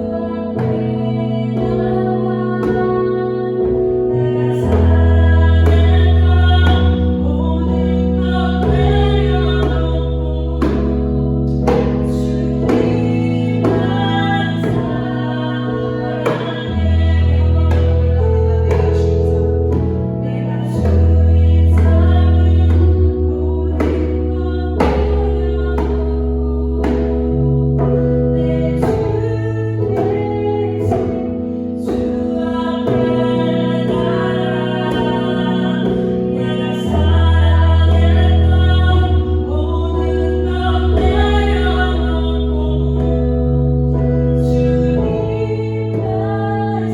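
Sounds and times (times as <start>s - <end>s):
bass line: 0.0s - 46.9s
instrumental accompaniment: 0.0s - 46.9s
person singing: 0.0s - 46.9s
sustained keyboard chords: 0.0s - 46.9s
djembe strikes: 4.5s - 42.4s
hand drum beat: 11.6s - 15.2s, 15.8s - 20.1s, 23.7s - 24.2s, 26.8s - 27.2s.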